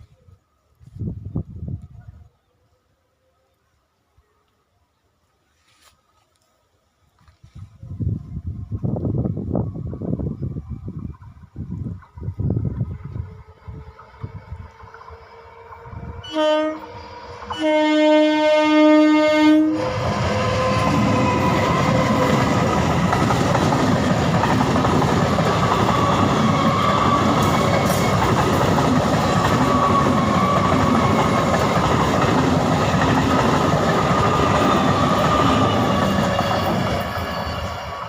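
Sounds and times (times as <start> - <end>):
train wheels rumbling on track: 8.7 - 38.0
train horn blast: 15.3 - 22.4.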